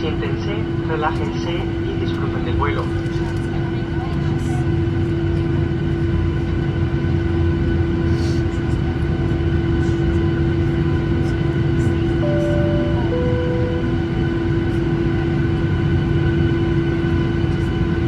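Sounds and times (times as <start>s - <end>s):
jet engine cabin hum: 12.2s - 14.8s.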